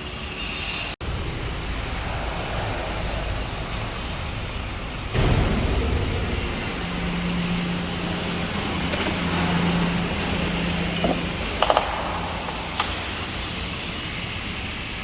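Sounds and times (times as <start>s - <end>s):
road traffic rumble and hiss: 0.0s - 15.0s.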